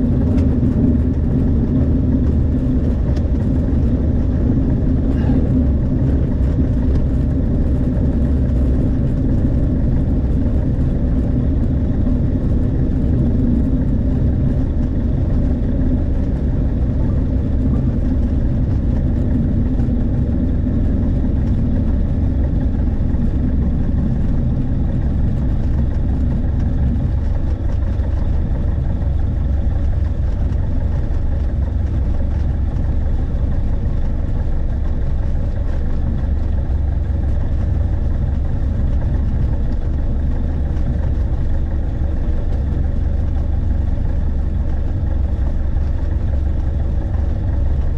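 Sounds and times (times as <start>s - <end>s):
aircraft piston engine droning: 0.0s - 47.9s.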